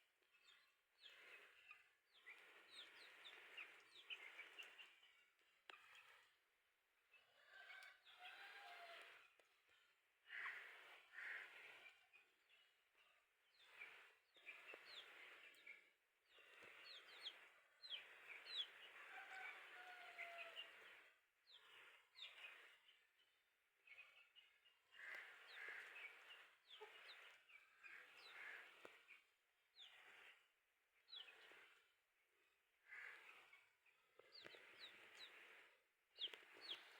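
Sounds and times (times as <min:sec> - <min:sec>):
chicks peeping: 0:13.6 - 0:22.6, 0:25.1 - 0:29.1, 0:31.1 - 0:31.7, 0:34.3 - 0:36.9.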